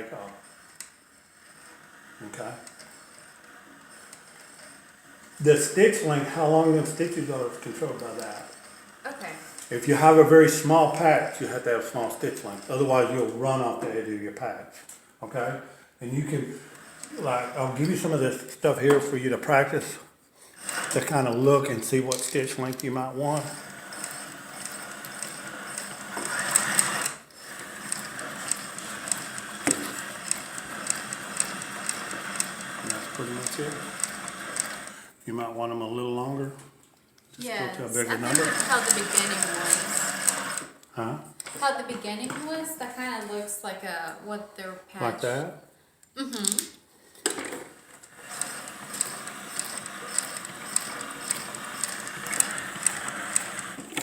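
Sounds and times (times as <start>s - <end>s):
sewing machine stitching with clicks: 20.6s - 35.1s, 37.4s - 42.6s, 47.3s - 54.0s.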